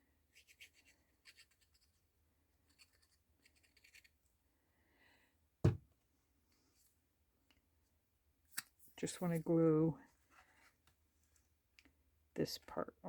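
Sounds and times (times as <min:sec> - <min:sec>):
loud thump: 0:05.6 - 0:05.8.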